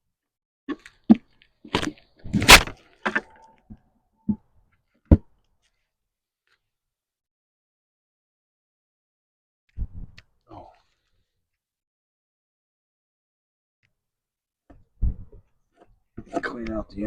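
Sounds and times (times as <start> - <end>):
wooden parts knocking together: 0.7 - 3.4.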